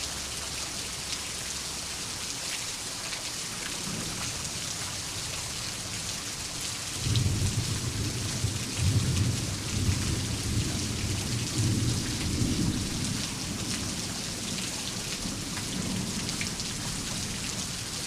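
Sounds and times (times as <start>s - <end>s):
rolling thunder rumble: 7.1s - 13.2s.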